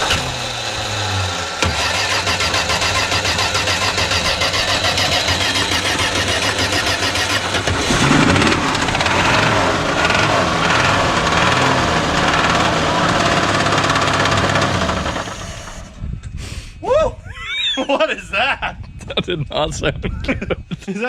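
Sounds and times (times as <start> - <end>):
car engine starting and running: 0.0 - 16.0
starter motor cranking: 0.0 - 16.0.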